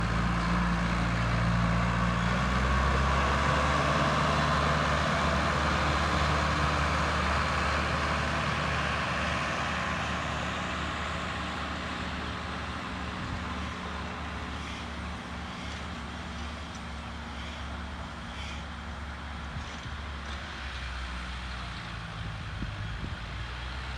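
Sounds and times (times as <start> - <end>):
tractor diesel engine running: 0.0 - 18.3.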